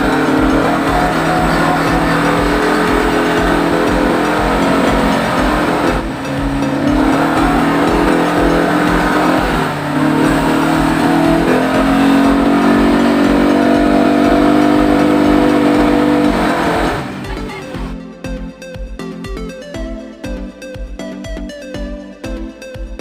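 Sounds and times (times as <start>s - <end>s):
atv engine running: 0.0s - 18.0s.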